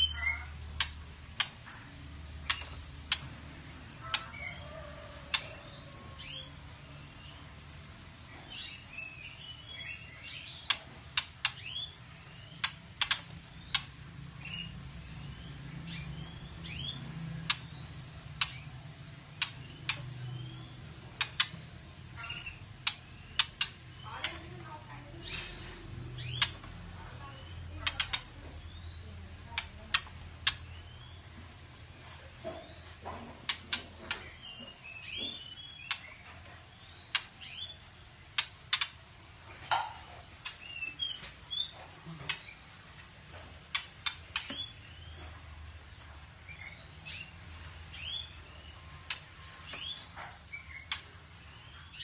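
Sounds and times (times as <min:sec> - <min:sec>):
bird clicking calls: 0:00.0 - 0:05.7, 0:10.2 - 0:14.0, 0:17.4 - 0:24.6, 0:25.2 - 0:31.0, 0:33.4 - 0:36.4, 0:37.0 - 0:39.1, 0:39.7 - 0:42.6, 0:43.6 - 0:44.8, 0:49.0 - 0:51.2
sharp clicks: 0:00.7 - 0:01.6, 0:02.4 - 0:03.4, 0:10.6 - 0:11.7, 0:12.6 - 0:14.0, 0:17.4 - 0:18.7, 0:19.3 - 0:20.4, 0:21.1 - 0:21.7, 0:22.8 - 0:24.5, 0:27.5 - 0:28.7, 0:29.5 - 0:30.8, 0:35.8 - 0:36.1, 0:37.1 - 0:37.5, 0:38.3 - 0:39.0, 0:43.7 - 0:44.7, 0:49.0 - 0:49.8, 0:50.8 - 0:51.1.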